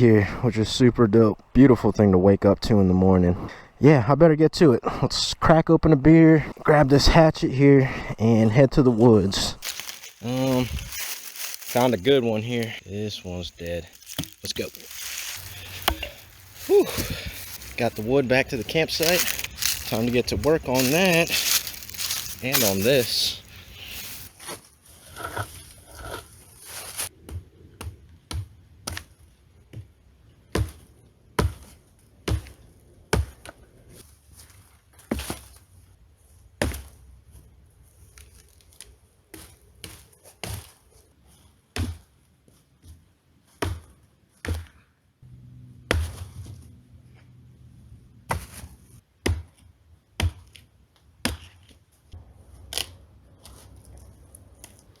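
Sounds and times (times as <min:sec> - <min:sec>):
hatchet chopping wood: 0:15.6 - 0:16.2, 0:49.2 - 0:49.6, 0:50.2 - 0:50.6.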